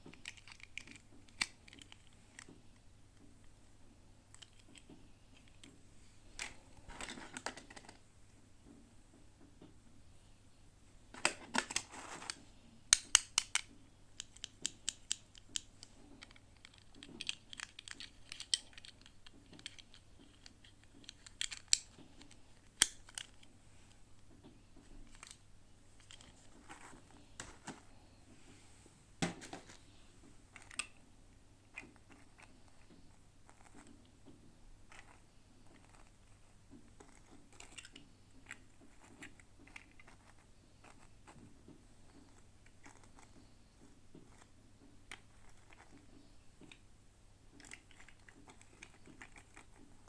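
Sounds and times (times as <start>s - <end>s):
toy clicks: 12.9s - 23.4s.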